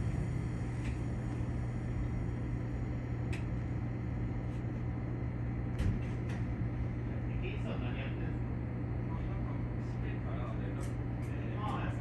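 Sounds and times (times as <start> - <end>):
electric train humming: 0.0 - 5.6.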